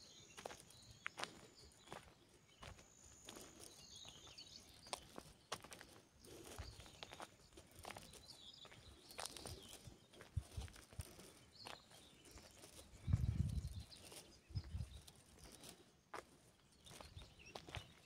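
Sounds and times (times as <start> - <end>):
footsteps rustling through vegetation: 0.4 - 17.9
wind rumble on microphone: 10.4 - 10.8, 12.9 - 15.0.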